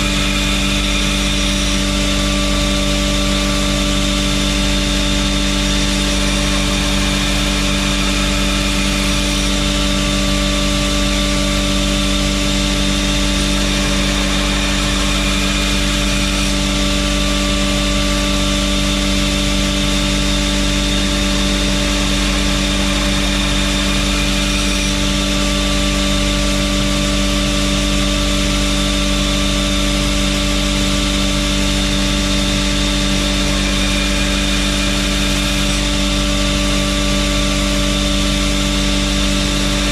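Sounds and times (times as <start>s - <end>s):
belt grinder grinding knife: 3.3s - 26.7s.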